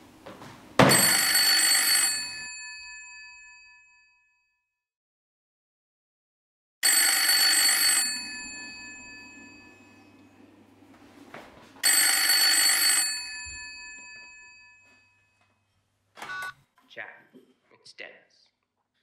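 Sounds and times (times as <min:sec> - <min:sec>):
phone ringing: 0:00.8 - 0:03.9, 0:06.8 - 0:16.7.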